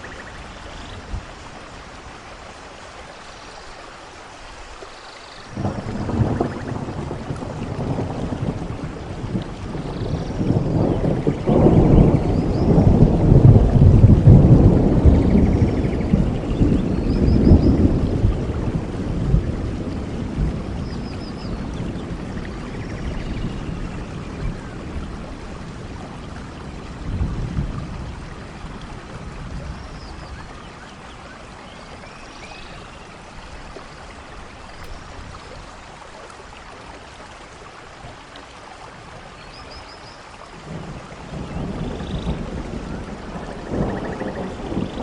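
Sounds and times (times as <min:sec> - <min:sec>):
steady rainfall: 0:00.0 - 0:45.0
rolling thunder: 0:05.5 - 0:30.5, 0:40.6 - 0:45.0.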